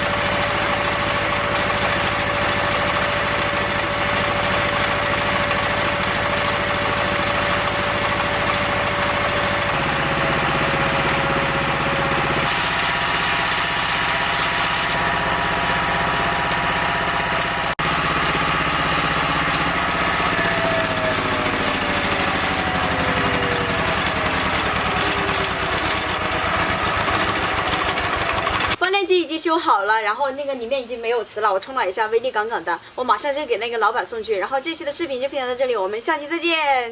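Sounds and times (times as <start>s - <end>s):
generator running: 0.0s - 28.8s.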